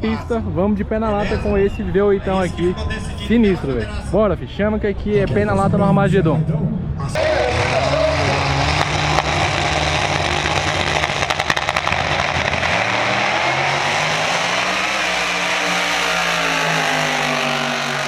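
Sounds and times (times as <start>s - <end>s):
exhaust crackles: 5.1s - 18.0s
car engine running hard: 5.3s - 18.0s.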